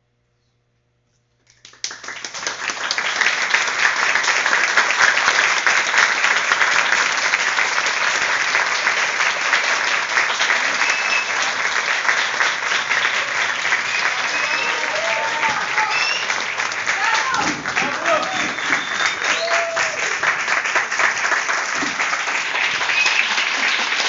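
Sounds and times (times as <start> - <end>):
audience applauding: 1.5 - 24.0.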